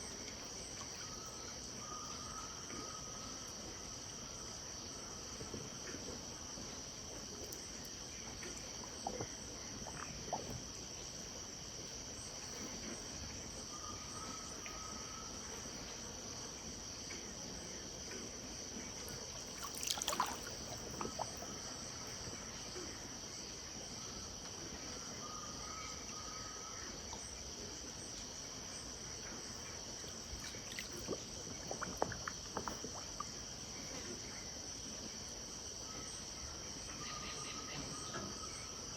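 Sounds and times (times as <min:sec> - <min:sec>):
high-pitched insect chorus: 0:18.9 - 0:38.9.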